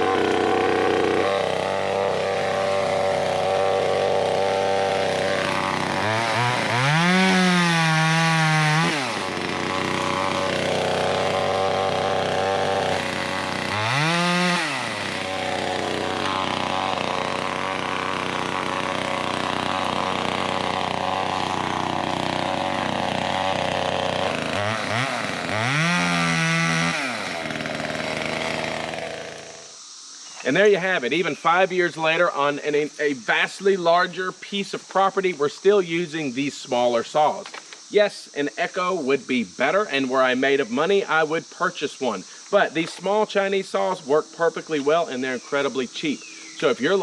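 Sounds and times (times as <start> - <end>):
chainsaw idling and revving: 0.0 - 29.8, 44.8 - 47.0.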